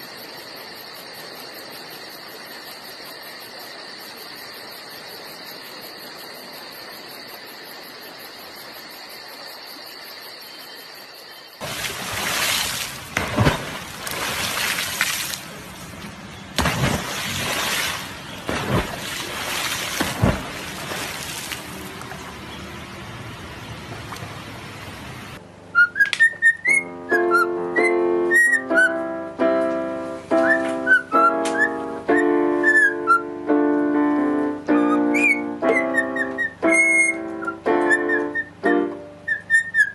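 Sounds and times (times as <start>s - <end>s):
rushing water: 11.6s - 25.4s
piano notes: 26.5s - 39.3s
cockatiel whistling: 35.1s - 37.2s.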